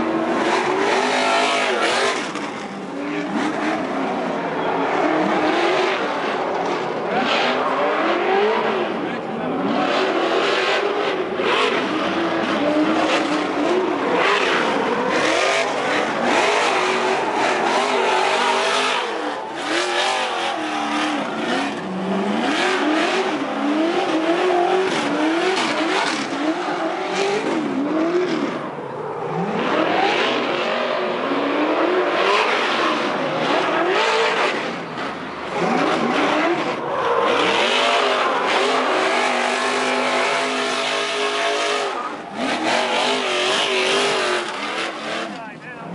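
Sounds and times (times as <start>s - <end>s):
truck engines revving hard: 0.0s - 45.9s.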